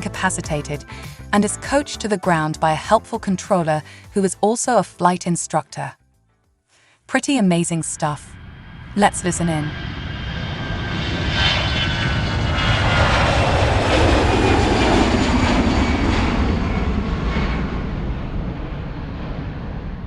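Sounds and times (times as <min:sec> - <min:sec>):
airplane flying past: 0:08.0 - 0:20.0.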